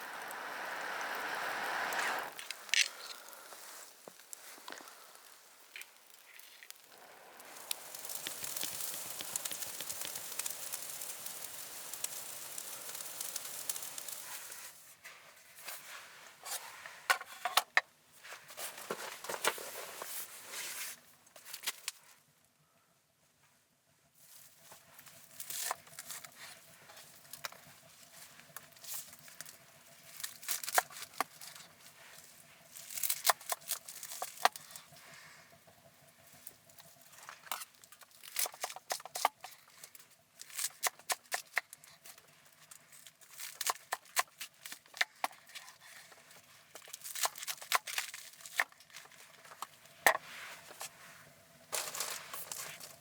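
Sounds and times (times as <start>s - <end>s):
crinkling rustling handling noise: 2.4s - 10.6s, 14.1s - 22.2s, 36.2s - 53.0s.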